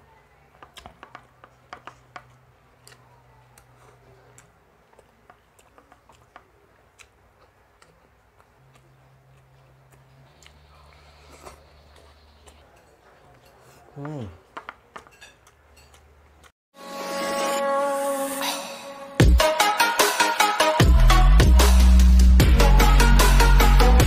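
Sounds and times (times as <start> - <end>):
person chewing: 0.7 - 16.6.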